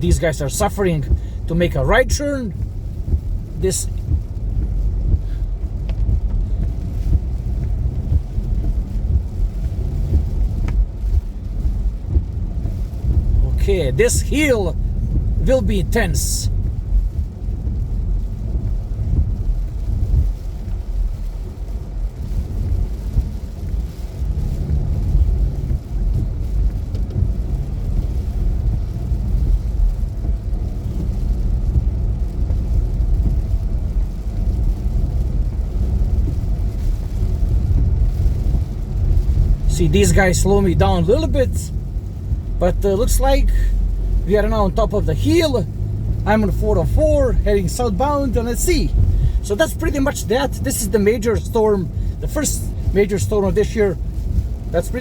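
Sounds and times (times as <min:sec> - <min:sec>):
car engine and tyre rumble: 0:00.0 - 0:55.0
faint clicks: 0:05.6 - 0:07.8.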